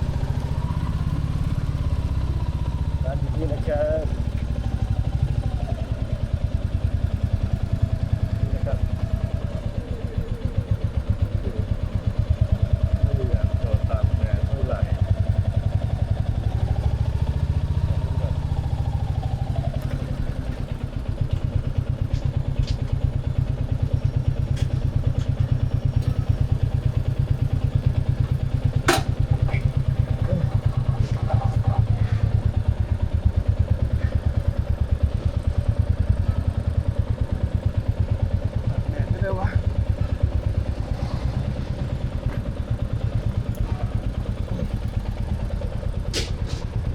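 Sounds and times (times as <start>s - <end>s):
motorcycle engine thumping: 19.6s - 46.9s.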